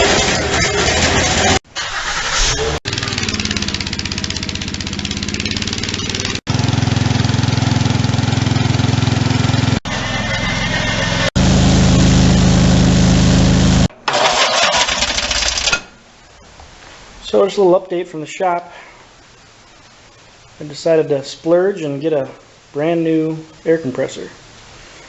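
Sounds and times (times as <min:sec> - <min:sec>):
machinery humming: 0:02.2 - 0:13.9.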